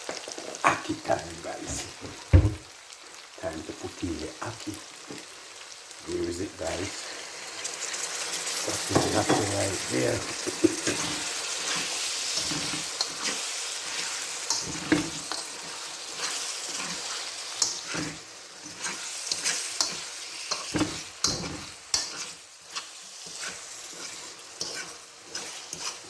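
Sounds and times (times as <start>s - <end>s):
vegetables sizzling in a pan: 0.0s - 26.0s
spoon knocking and scraping pan: 1.8s - 2.7s, 8.6s - 26.0s.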